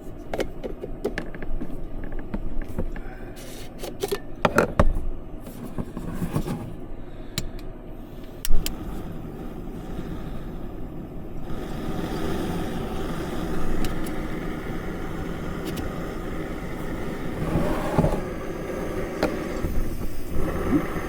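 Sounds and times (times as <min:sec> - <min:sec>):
gas stove hissing: 0:05.5 - 0:21.0.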